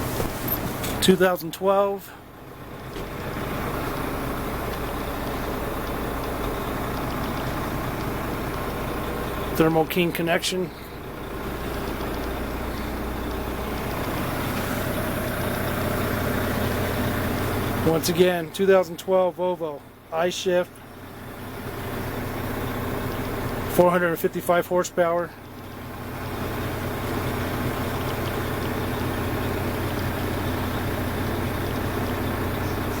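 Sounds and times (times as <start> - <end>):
truck diesel engine idling: 0.0 - 33.0.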